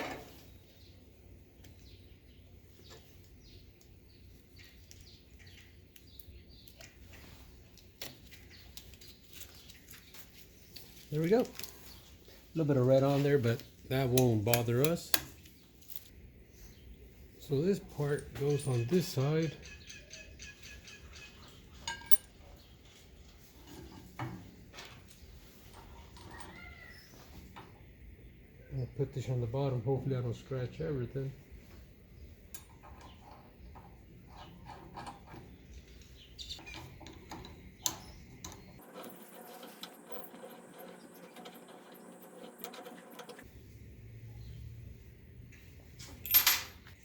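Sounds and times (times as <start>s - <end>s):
faint bird chirping: 0.5s - 7.6s, 16.4s - 24.1s, 25.1s - 31.4s, 32.1s - 38.8s, 44.2s - 45.8s
metallic clinks with ring: 21.9s - 22.3s.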